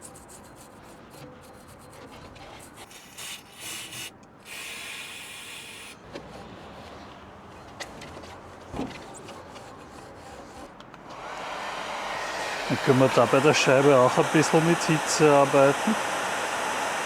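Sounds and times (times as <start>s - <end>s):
rubbing and scrubbing on brake rotor: 0.0s - 11.1s
short hissing bursts: 2.8s - 6.0s, 11.2s - 17.0s.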